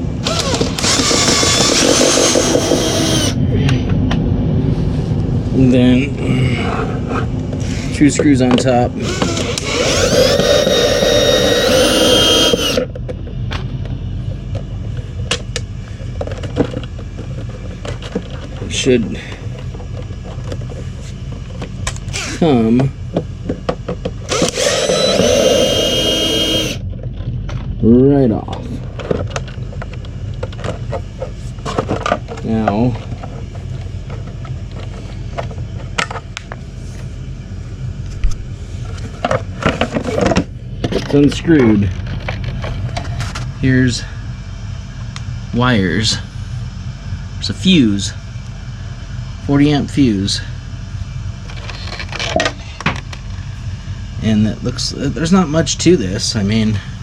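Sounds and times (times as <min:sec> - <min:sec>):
power drill whining: 0:00.2 - 0:03.4, 0:09.0 - 0:12.9, 0:24.3 - 0:26.8
low rumble: 0:02.8 - 0:07.6.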